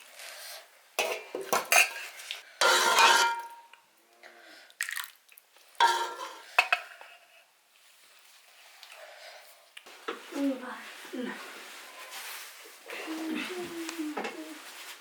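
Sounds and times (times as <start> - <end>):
metal dishes clanking: 1.0 - 3.7, 5.8 - 7.1.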